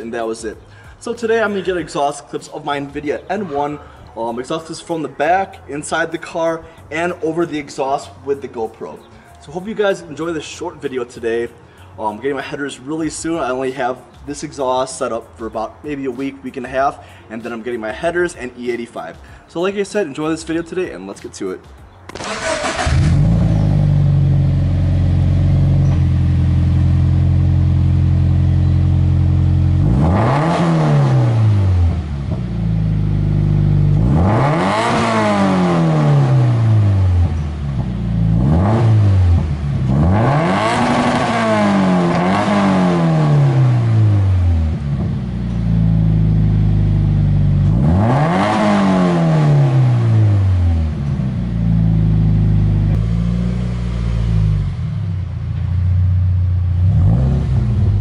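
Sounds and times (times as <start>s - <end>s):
car engine idling and revving: 22.1s - 58.0s.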